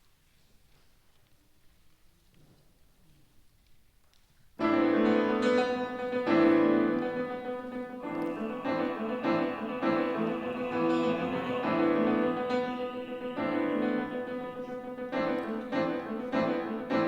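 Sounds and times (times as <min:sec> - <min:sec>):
piano playing chords: 0:04.6 - 0:17.0.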